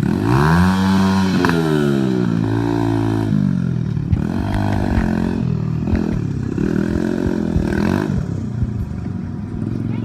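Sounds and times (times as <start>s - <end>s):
dirt bike engine revving: 0.0s - 9.0s
sharp clattering knocks: 5.8s - 9.1s.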